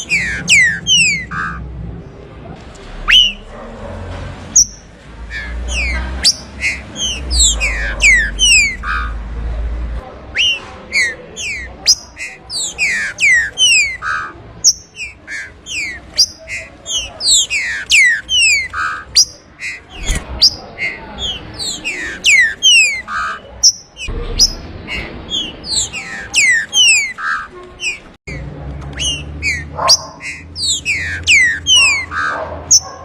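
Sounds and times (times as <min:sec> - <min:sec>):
bird singing whistled notes: 0:00.0 - 0:01.6, 0:03.0 - 0:03.5, 0:04.6 - 0:09.2, 0:10.4 - 0:28.1, 0:29.0 - 0:32.3.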